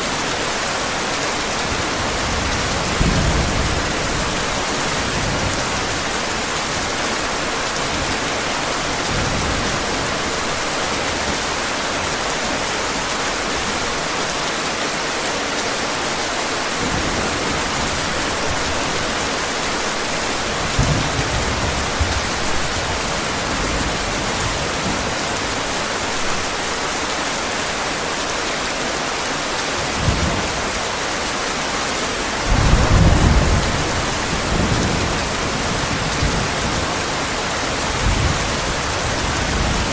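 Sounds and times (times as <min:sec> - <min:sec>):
heavy rain hissing: 0:00.0 - 0:39.9
thunder rumbling: 0:32.4 - 0:39.9.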